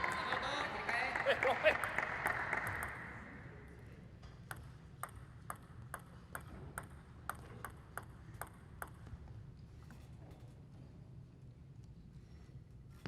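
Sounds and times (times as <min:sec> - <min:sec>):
faint arena background noise: 0:00.0 - 0:13.0
table tennis ball bouncing: 0:04.4 - 0:09.3.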